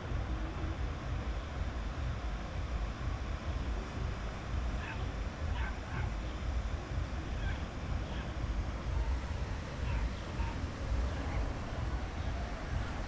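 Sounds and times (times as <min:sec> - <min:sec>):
wind rumble on microphone: 0:00.0 - 0:13.0
distant voices: 0:03.4 - 0:13.0.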